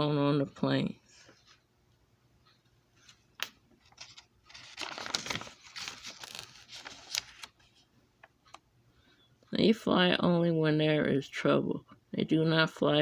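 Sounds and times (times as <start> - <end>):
crinkling and rustling: 2.9 - 8.6.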